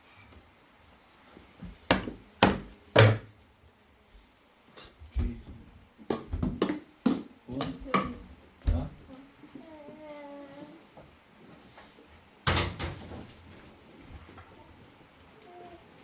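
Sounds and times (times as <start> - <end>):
knocks and thuds: 6.2 - 6.7.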